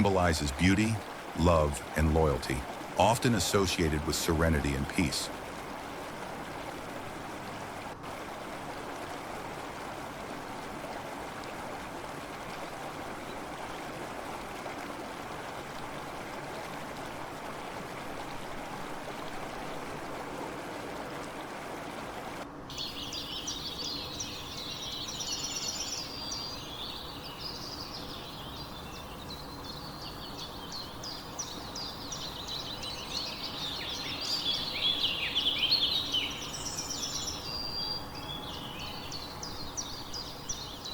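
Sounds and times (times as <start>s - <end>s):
small birds chirping: 0.0s - 5.4s, 22.7s - 40.9s
flowing water: 0.0s - 40.9s.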